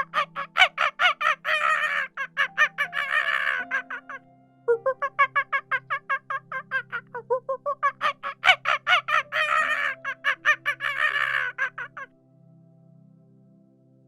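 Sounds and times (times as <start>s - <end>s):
turkeys gobbling: 0.0s - 4.2s, 7.8s - 12.0s
soft background music: 0.0s - 14.0s.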